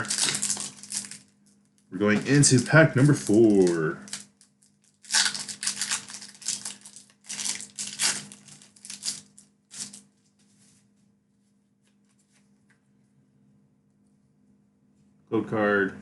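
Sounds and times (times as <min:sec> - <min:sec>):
foil wrapper tearing and crinkling: 0:00.0 - 0:01.3, 0:02.0 - 0:10.1.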